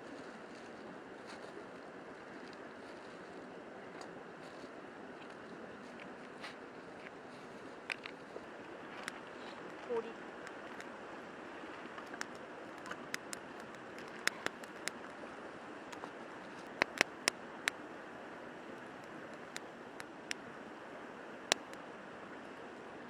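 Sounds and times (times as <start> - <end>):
river flowing: 0.0 - 23.0
sharp clicks and snaps: 7.9 - 8.2, 12.0 - 15.1, 15.9 - 17.8, 19.0 - 20.4, 21.5 - 21.8.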